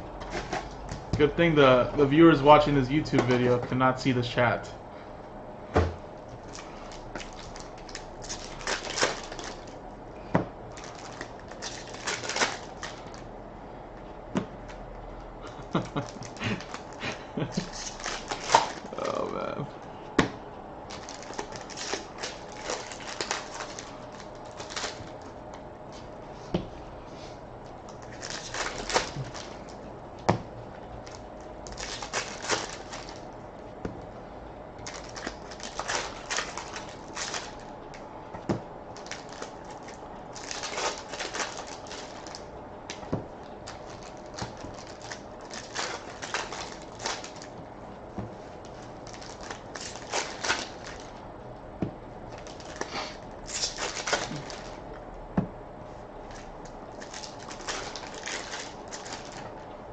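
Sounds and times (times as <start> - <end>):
trading cards clicking and rustling: 10.8 - 13.3, 15.5 - 19.6, 20.9 - 25.4, 27.8 - 30.4, 31.0 - 33.3, 34.8 - 47.6.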